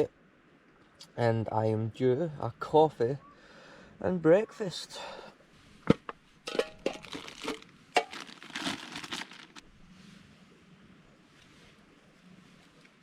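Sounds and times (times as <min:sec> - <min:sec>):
crinkly material crumpling: 0:06.8 - 0:09.7.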